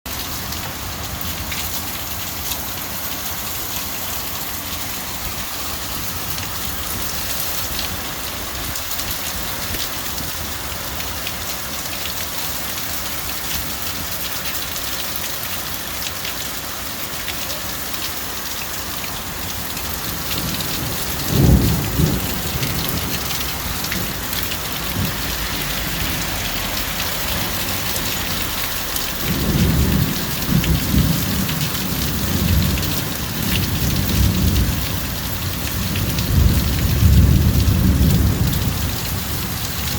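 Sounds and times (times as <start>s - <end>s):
rain falling: 0.1s - 39.9s
thunder rumbling: 19.9s - 39.8s.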